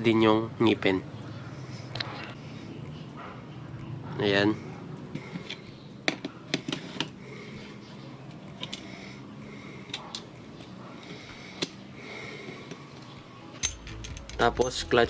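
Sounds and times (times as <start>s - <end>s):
metallic clicks of engine parts: 8.3s - 9.2s, 9.8s - 15.0s.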